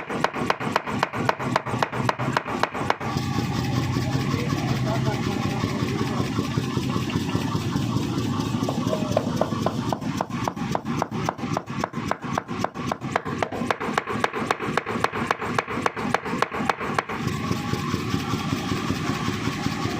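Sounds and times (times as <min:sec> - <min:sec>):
forging hammer blows: 0:00.0 - 0:04.4, 0:05.0 - 0:19.9
motor running steadily: 0:00.0 - 0:19.9.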